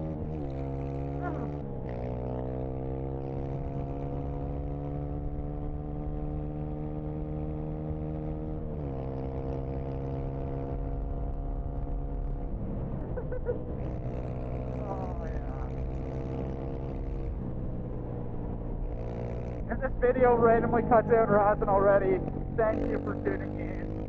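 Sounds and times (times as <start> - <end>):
dirt bike engine running: 13.2 - 24.0.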